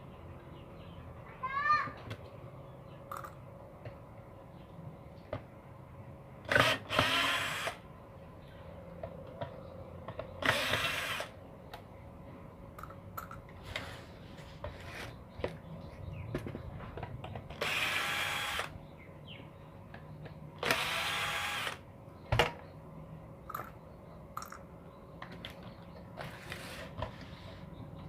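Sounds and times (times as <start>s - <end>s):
electric screwdriver whining: 6.5s - 7.8s, 10.4s - 11.4s, 17.6s - 18.7s, 20.6s - 21.8s.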